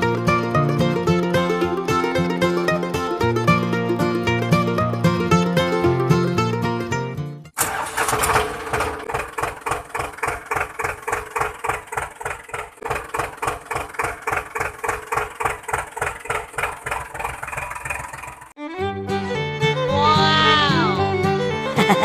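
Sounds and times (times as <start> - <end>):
tractor engine idling: 0.0 - 6.3, 7.6 - 18.6.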